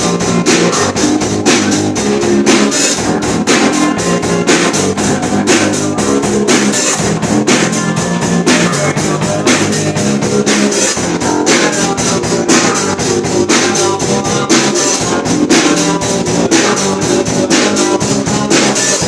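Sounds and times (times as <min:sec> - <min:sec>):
drum kit playing: 0:00.0 - 0:19.0
guitar chords: 0:00.0 - 0:19.0.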